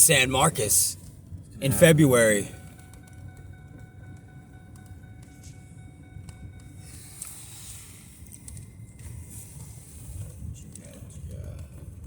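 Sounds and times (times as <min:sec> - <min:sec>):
car engine and road rumble: 0:00.0 - 0:01.0.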